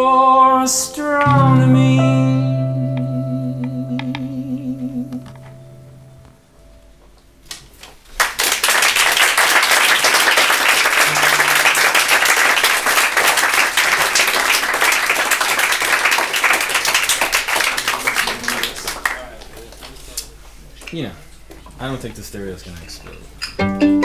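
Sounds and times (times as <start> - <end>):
audience applauding: 8.1 - 19.9.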